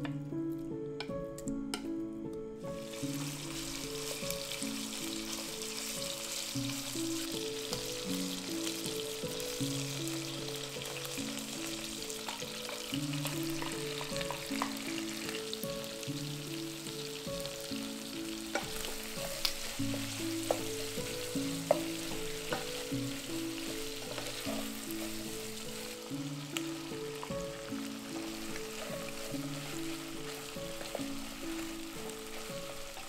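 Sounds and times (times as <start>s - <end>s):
soft melody of held notes: 0.0s - 33.0s
food sizzling in hot oil: 2.6s - 33.0s
utensils knocking against pot: 23.6s - 25.3s.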